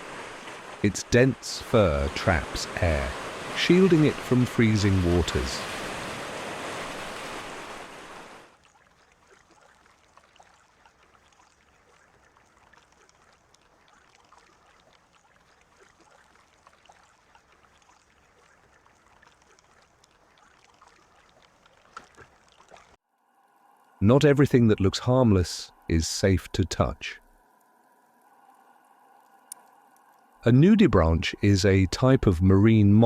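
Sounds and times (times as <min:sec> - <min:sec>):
surf hissing: 0:00.0 - 0:08.5
faint water ambience: 0:00.0 - 0:33.0
small ticks and crackles: 0:08.6 - 0:23.0.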